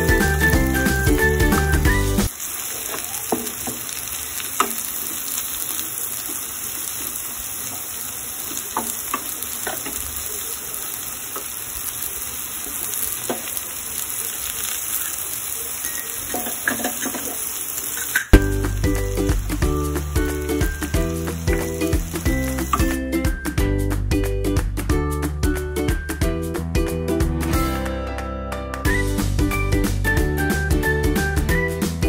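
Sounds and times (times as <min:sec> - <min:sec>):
vegetables sizzling in oil: 0:00.0 - 0:23.5.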